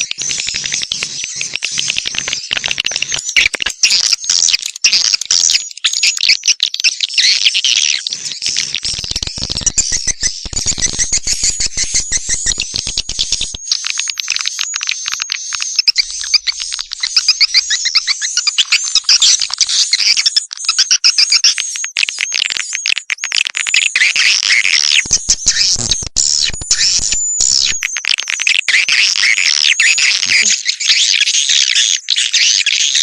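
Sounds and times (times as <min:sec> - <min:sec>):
swiftlets twittering: 0:00.0 - 0:05.8, 0:08.1 - 0:20.0, 0:24.5 - 0:28.0
fast run of sharp clicks: 0:08.8 - 0:17.3.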